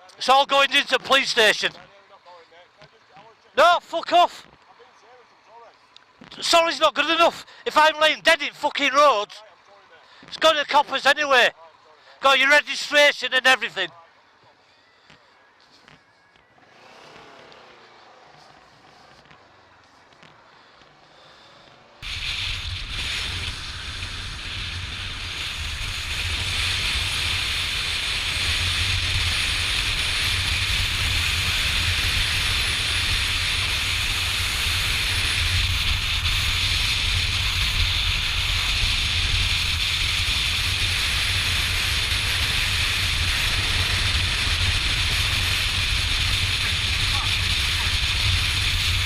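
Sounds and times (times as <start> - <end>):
motorcycle and road rumble: 14.0 - 49.0
wind rush on microphone: 22.0 - 49.0.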